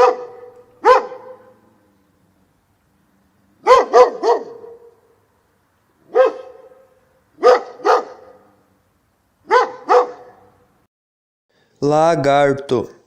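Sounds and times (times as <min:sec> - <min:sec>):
dog barking: 0:00.0 - 0:01.6, 0:03.6 - 0:05.1, 0:06.0 - 0:08.6, 0:09.4 - 0:10.6.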